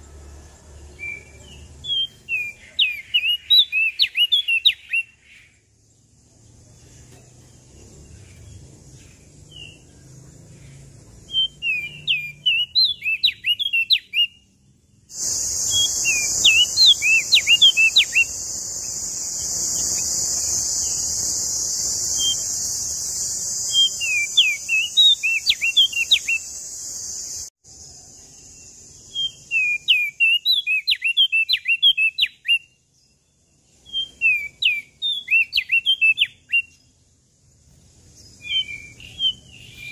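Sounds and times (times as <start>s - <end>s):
warbler whistled song: 0.0s - 39.9s
steady high hiss: 15.1s - 29.8s.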